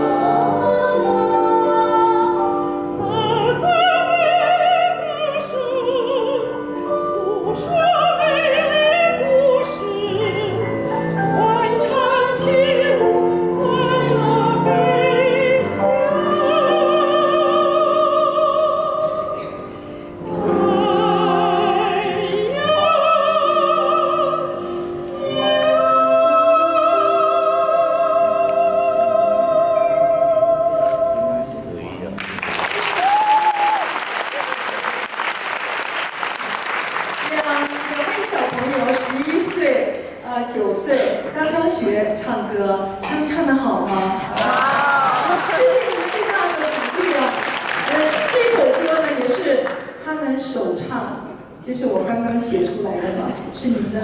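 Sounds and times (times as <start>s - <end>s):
soprano singing with vibrato: 0.0s - 31.7s
piano accompaniment: 0.0s - 33.9s.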